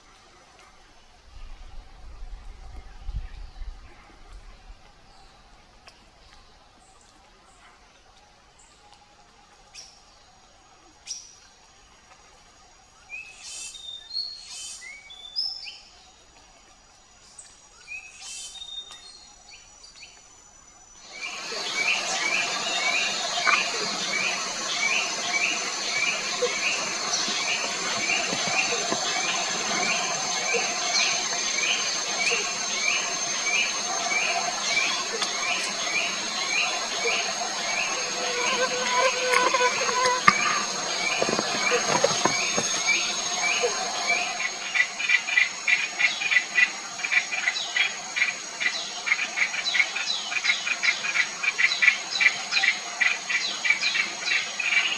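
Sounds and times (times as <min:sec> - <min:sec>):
high insect whine: 0:12.6 - 0:54.9
birds calling: 0:21.0 - 0:45.2
rushing noise: 0:21.1 - 0:44.6.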